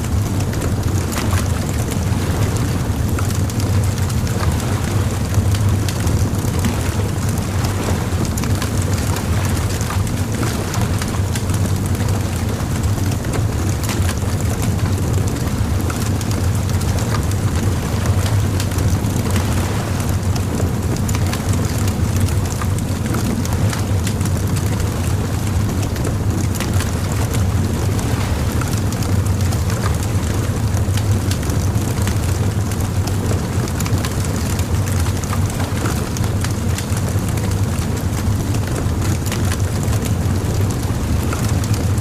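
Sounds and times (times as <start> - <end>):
low rumble: 0.0 - 33.3
bonfire crackling: 0.2 - 42.0.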